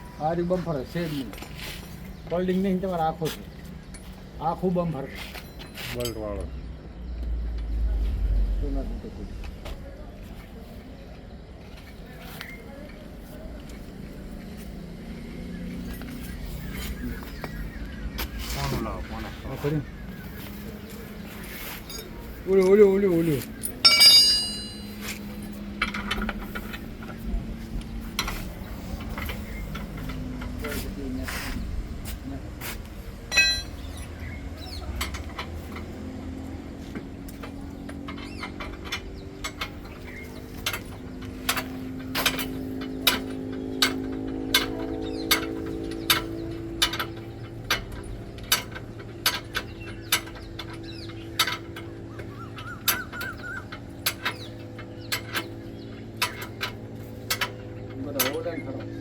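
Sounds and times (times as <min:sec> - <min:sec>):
faint bird chirps: 0:15.5 - 0:23.8
metal tools clinking: 0:20.9 - 0:27.2, 0:33.3 - 0:36.2
metallic clinks of tools on metal: 0:21.8 - 0:22.8, 0:23.6 - 0:26.2, 0:33.3 - 0:34.2.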